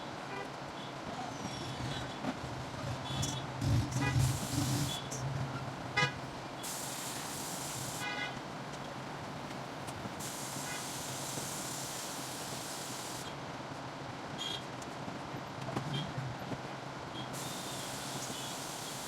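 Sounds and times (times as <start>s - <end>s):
street traffic: 0.0s - 19.0s
high hiss: 4.1s - 5.2s, 6.6s - 8.4s, 10.2s - 13.3s, 17.4s - 19.0s
vehicle horn toots: 6.0s - 6.2s.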